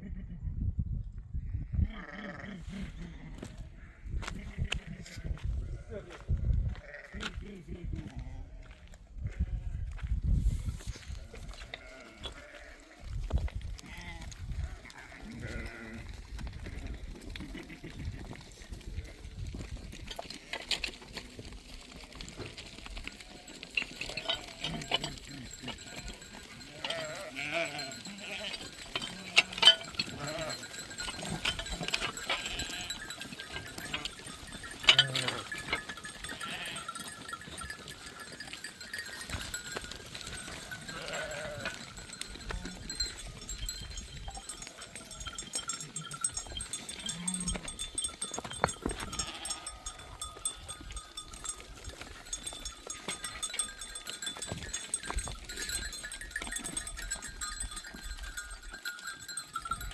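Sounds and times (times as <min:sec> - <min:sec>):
sheep and goats bleating: 0:01.6 - 0:10.1, 0:10.9 - 0:59.9
animal bells clinking: 0:13.7 - 0:59.9.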